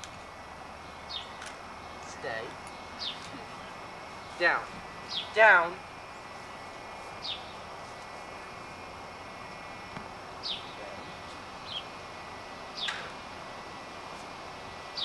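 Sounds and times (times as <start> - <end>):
background hiss: 0.0 - 15.0
songbird whistling: 7.2 - 7.6.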